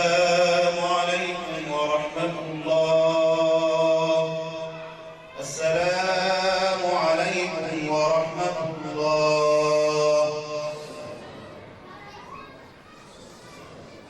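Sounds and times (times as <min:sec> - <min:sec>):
man chanting: 0:00.0 - 0:11.1.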